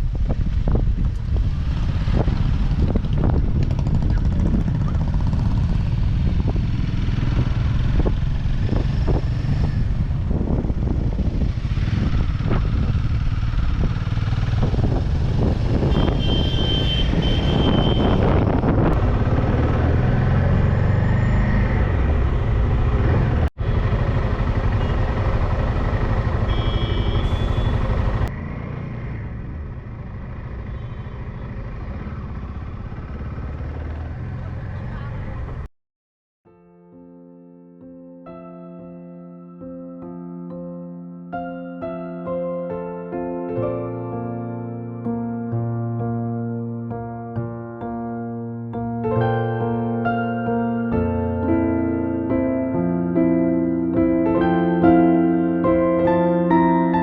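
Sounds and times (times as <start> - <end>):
wind and road knocks: 0.0 - 6.8
motorcycle engine rumble: 0.0 - 35.7.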